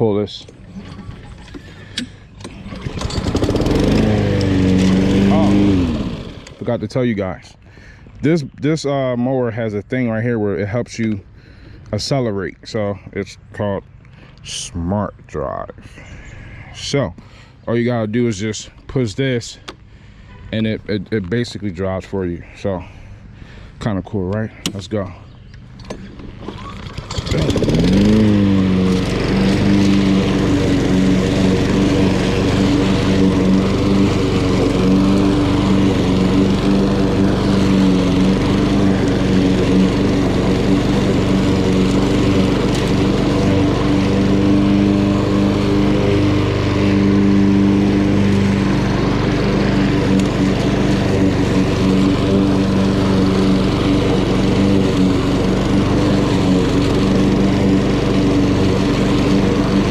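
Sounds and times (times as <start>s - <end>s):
lawn mower engine: 0.0s - 8.1s, 24.5s - 59.9s.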